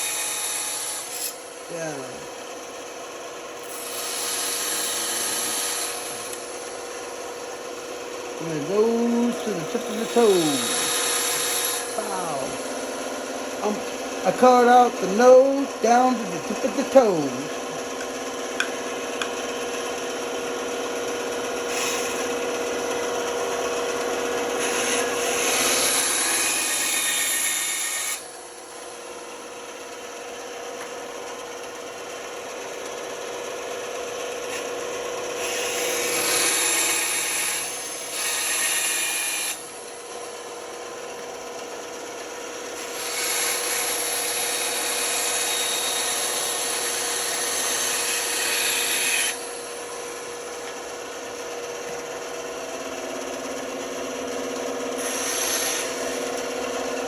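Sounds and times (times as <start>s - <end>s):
saw blade cutting wood: 0.0s - 2.1s, 3.6s - 6.8s, 8.4s - 20.1s, 21.5s - 28.4s, 34.4s - 40.4s, 42.6s - 50.8s, 54.4s - 57.0s
band saw humming: 3.5s - 57.0s.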